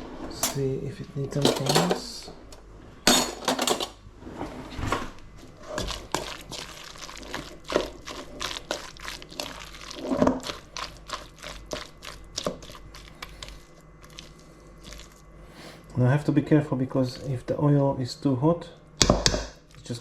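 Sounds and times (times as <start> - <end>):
wet squelches: 5.6 - 15.9.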